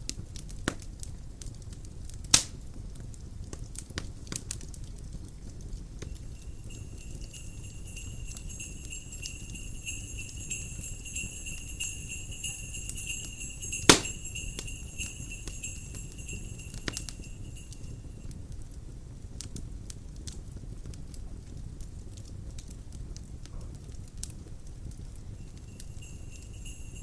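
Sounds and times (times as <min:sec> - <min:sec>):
fire crackling and popping: 0:00.0 - 0:27.0
jingle bells shaking: 0:06.0 - 0:18.3, 0:25.3 - 0:27.0.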